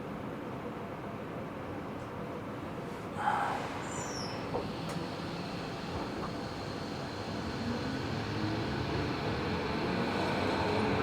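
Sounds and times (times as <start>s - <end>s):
train wheels rumbling on track: 3.0s - 11.0s
train traction motor whine: 3.2s - 11.0s.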